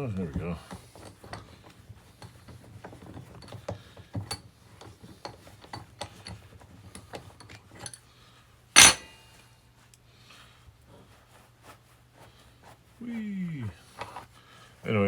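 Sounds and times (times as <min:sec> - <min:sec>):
small metallic clicks and clinks: 0:02.2 - 0:08.0, 0:08.8 - 0:09.1
loud metal clank ringing: 0:08.8 - 0:09.1.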